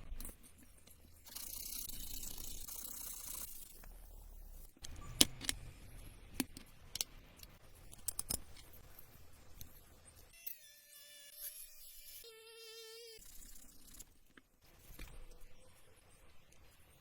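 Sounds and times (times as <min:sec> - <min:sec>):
small metal parts clicking: 0:06.4 - 0:08.8.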